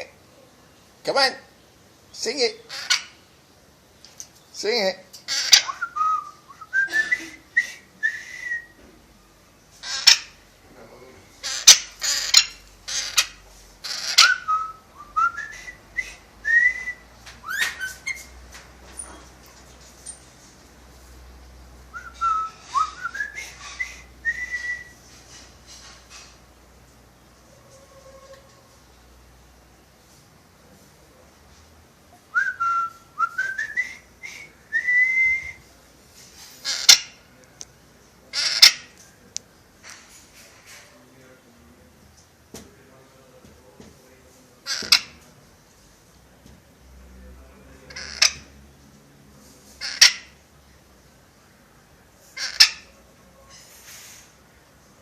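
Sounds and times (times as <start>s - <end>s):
parrot harsh calls: 2.6s - 3.2s, 5.2s - 5.8s, 9.8s - 10.4s, 11.4s - 14.5s, 36.6s - 37.2s, 38.3s - 39.0s, 44.6s - 45.2s, 47.9s - 48.5s, 49.8s - 50.4s, 52.3s - 53.8s
parrot whistling: 13.9s - 18.3s.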